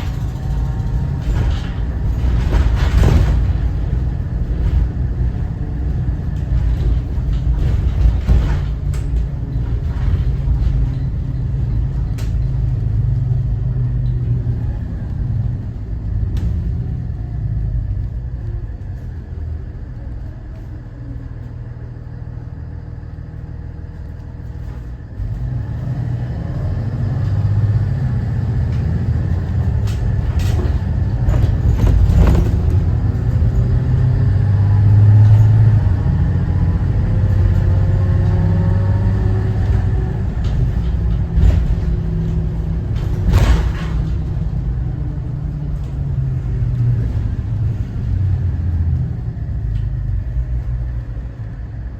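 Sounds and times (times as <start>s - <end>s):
knocks and rattles: 0.0s - 17.1s, 28.6s - 51.0s
bus diesel engine rumbling: 0.0s - 51.9s.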